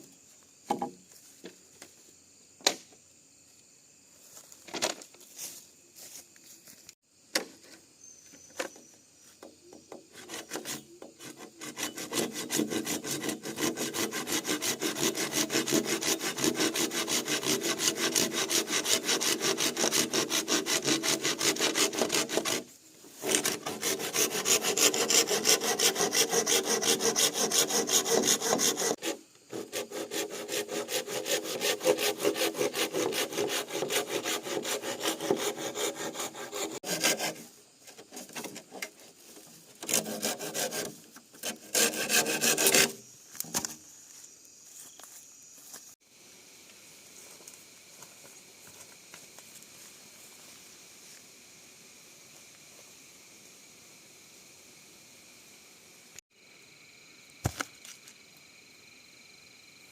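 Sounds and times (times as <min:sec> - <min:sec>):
hand saw cutting bamboo: 0:10.1 - 0:39.1, 0:39.8 - 0:43.7.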